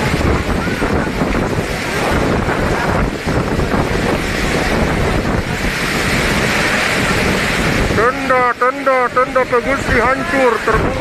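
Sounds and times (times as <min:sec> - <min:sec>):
strong wind on microphone: 0:00.0 - 0:11.0.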